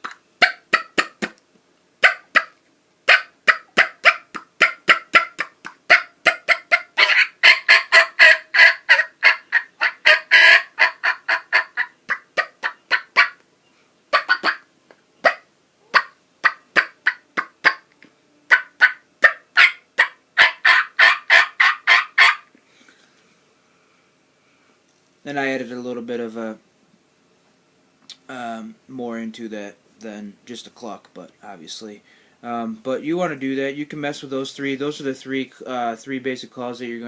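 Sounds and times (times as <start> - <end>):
turkey call clucks: 0.0 - 1.4, 2.0 - 13.4, 14.1 - 17.9, 18.5 - 22.5.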